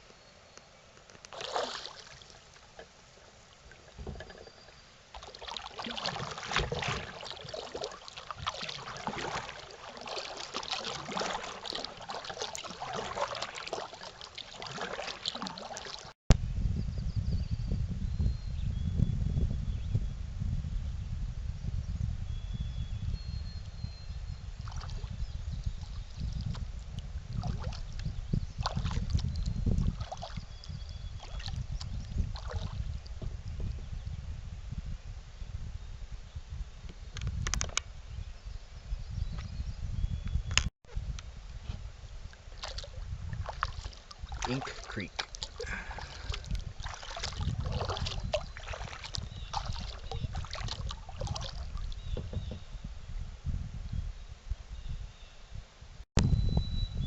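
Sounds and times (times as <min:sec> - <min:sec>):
paddle splashing in water: 0:01.2 - 0:16.2, 0:24.6 - 0:33.3, 0:41.8 - 0:52.7.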